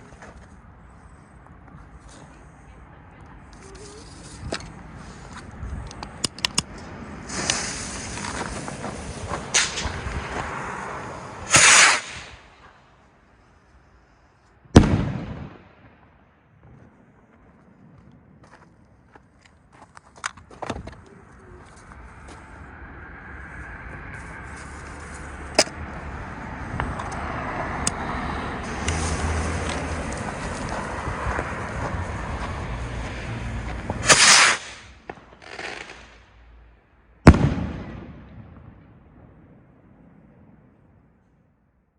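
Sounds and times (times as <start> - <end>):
firework hissing and whooshing: 7.0 - 12.5, 28.6 - 32.6, 33.8 - 36.2
firework bang with echo: 11.5 - 12.3, 14.8 - 15.7, 37.3 - 39.7.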